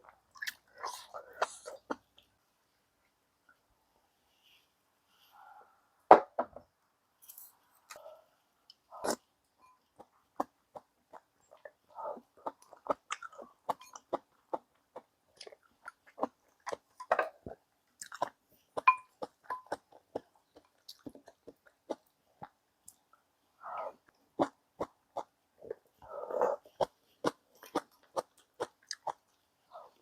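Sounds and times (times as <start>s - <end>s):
person chewing with wet smacks: 0.0s - 2.3s, 9.8s - 23.2s, 24.0s - 30.0s.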